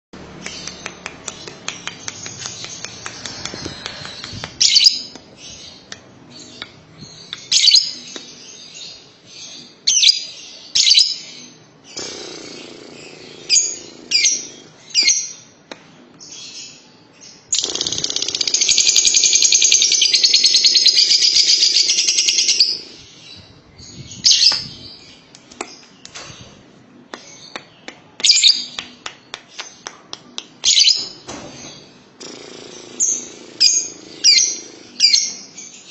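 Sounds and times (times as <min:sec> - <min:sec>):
lovebird rapid chattering trill: 0:17.6 - 0:22.8.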